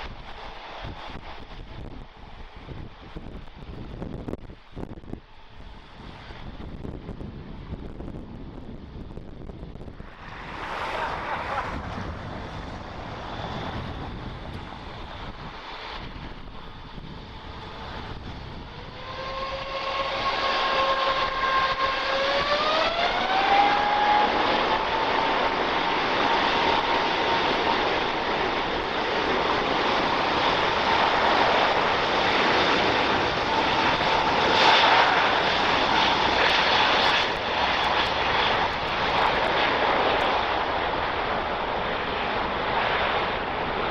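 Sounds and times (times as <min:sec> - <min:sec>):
jet engines spooling up: 0:08.8 - 0:43.9
whining tones rising in pitch: 0:09.9 - 0:16.1, 0:17.1 - 0:29.0.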